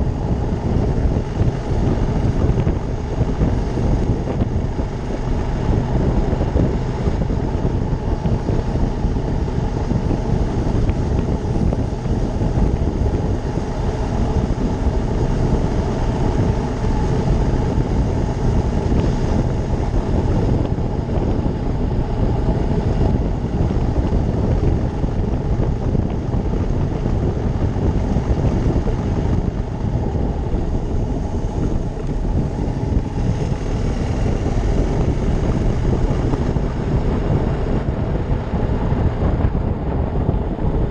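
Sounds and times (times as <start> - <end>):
motorcycle engine running: 0.0 - 40.9
wind rushing over microphone: 0.0 - 40.9.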